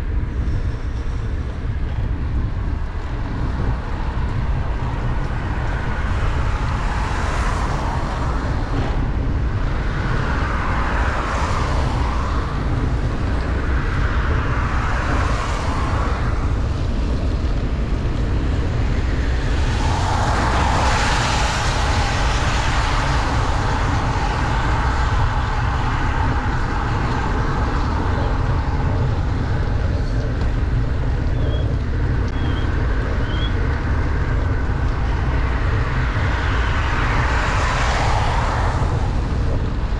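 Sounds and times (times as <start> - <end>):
wind rumbling on microphone: 0.0 - 39.9
heavy rain: 2.6 - 39.9
vehicles swishing past on wet road: 3.3 - 39.9.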